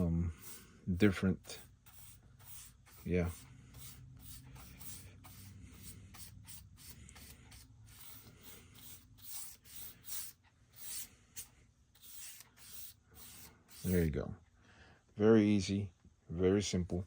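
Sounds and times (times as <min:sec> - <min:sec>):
paintbrush swishing on wood: 0:00.0 - 0:14.1.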